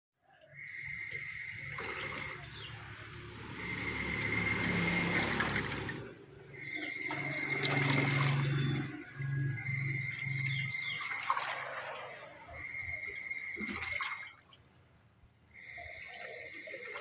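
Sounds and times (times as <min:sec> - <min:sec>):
water churning in washing machine: 0:00.5 - 0:14.8, 0:15.5 - 0:17.0
low motor hum: 0:00.6 - 0:14.0.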